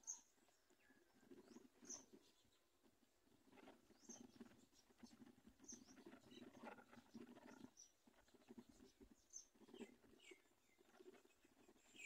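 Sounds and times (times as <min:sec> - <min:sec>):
birds chirping: 0:03.6 - 0:12.0.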